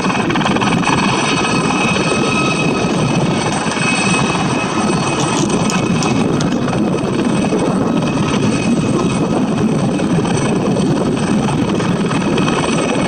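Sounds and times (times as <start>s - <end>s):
helicopter flying low: 0.0s - 13.0s.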